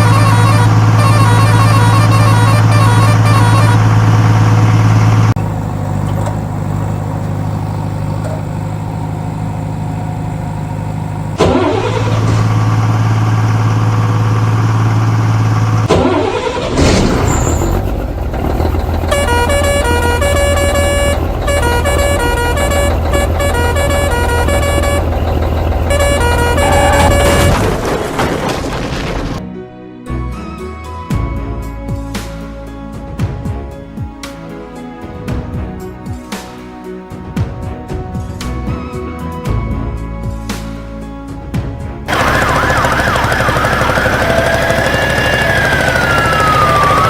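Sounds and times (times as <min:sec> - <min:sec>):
low engine-like drone: 0:00.0 - 0:29.4, 0:42.0 - 0:47.0.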